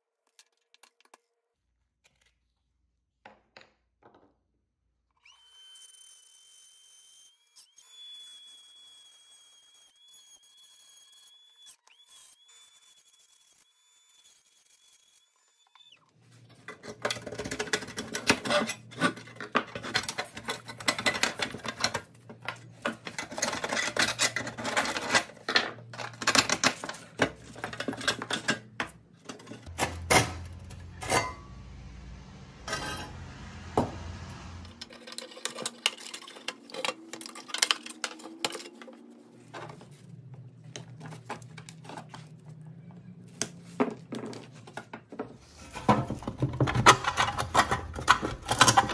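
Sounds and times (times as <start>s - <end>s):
metal toy parts clinking and scraping: 16.7s - 31.4s, 34.8s - 39.8s, 45.6s - 48.9s
low steady hum: 27.1s - 34.8s.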